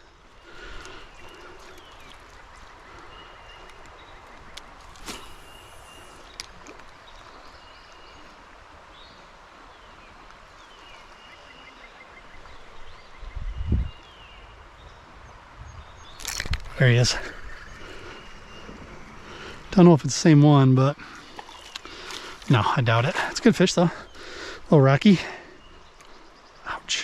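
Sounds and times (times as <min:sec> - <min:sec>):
birds calling: 0:00.0 - 0:27.0
mountain stream rushing: 0:16.2 - 0:25.6.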